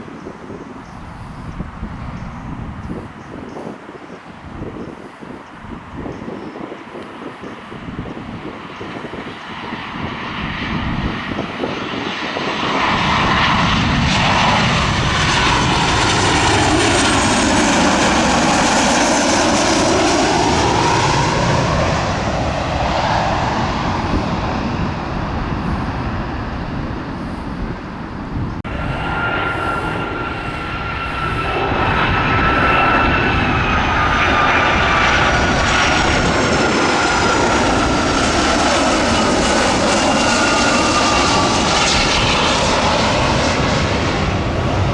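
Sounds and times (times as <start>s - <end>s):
aircraft engines roaring overhead: 0.0s - 44.9s
steady engine whine: 4.5s - 44.9s.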